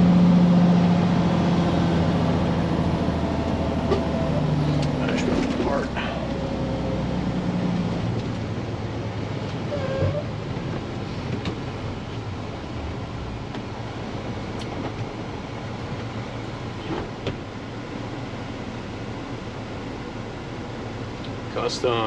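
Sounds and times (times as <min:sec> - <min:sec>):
truck engine and road noise: 0:00.0 - 0:22.0.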